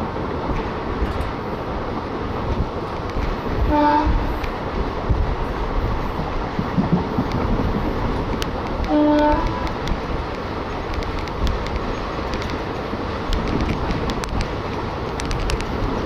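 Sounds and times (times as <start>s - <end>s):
passenger train running noise: 0.0s - 16.0s
train horn toot: 3.7s - 4.4s, 8.9s - 9.7s
wheel and track clicks: 6.2s - 16.0s.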